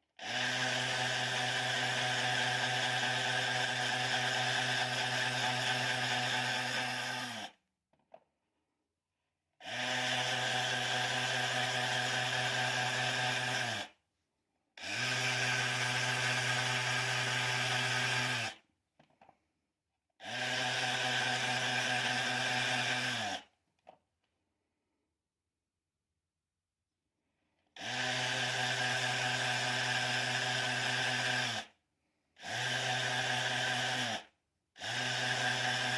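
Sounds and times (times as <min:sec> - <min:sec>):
power tool motor spinning: 0:00.2 - 0:07.6, 0:09.7 - 0:13.9, 0:14.8 - 0:18.6, 0:20.2 - 0:23.4, 0:27.8 - 0:31.7, 0:32.4 - 0:35.9.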